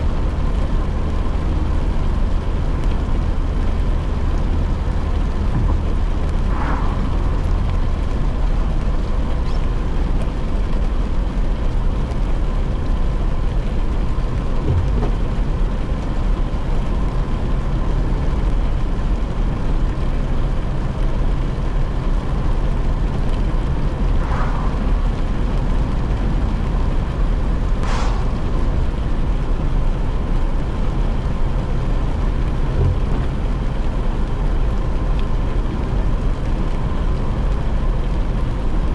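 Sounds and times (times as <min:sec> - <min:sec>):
rain and wet tyres hiss: 0:00.0 - 0:38.9
road and engine rumble: 0:00.0 - 0:38.9
passing swishes: 0:06.3 - 0:08.0, 0:24.0 - 0:26.0, 0:27.8 - 0:29.1.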